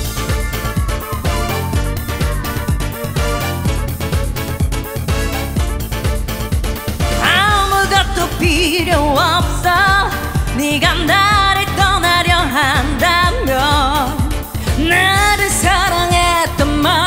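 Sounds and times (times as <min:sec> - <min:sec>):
backing track with bass beat: 0:00.0 - 0:17.0
women singing dance-pop: 0:07.2 - 0:17.0.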